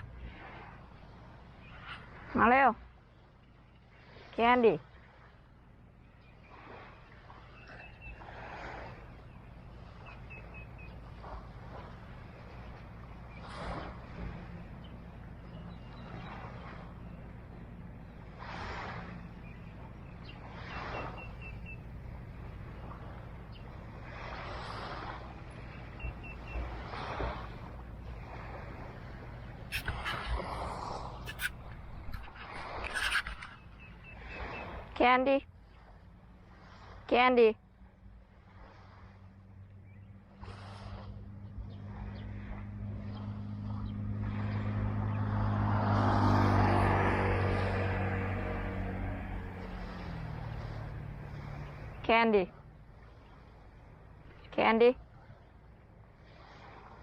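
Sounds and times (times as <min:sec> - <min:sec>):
small waves washing on beach: 0:00.0 - 0:57.0
vehicle passing by: 0:06.5 - 0:57.0
bird chirping: 0:09.2 - 0:11.1, 0:19.2 - 0:22.1, 0:25.5 - 0:26.8, 0:31.2 - 0:34.8.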